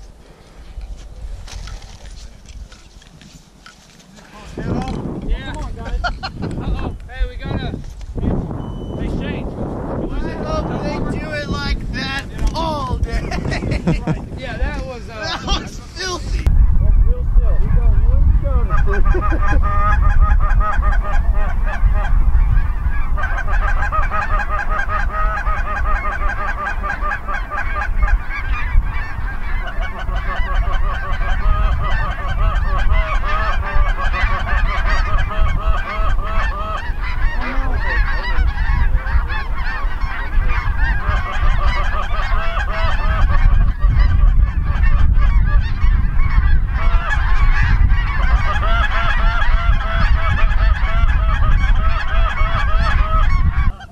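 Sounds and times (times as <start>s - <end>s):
low rumble: 16.4s - 23.2s
geese honking: 18.6s - 53.9s.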